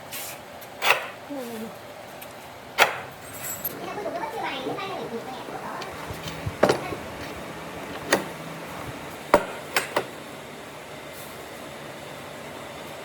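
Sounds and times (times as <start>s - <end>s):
steady background noise: 0.0s - 13.0s
hard objects knocking: 5.8s - 10.1s.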